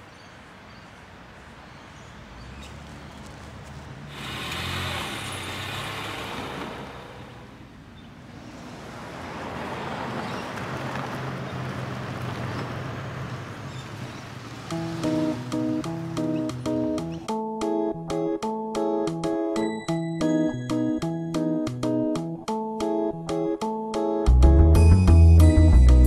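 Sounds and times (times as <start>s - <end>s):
road traffic passing: 0.0s - 18.6s.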